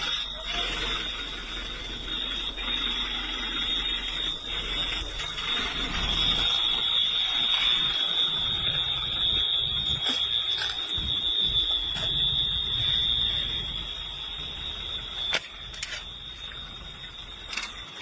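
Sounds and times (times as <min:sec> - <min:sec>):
high-pitched electronic alarm tone: 0:00.0 - 0:18.0
low rumble: 0:00.0 - 0:18.0
sharp clicks: 0:17.5 - 0:18.0.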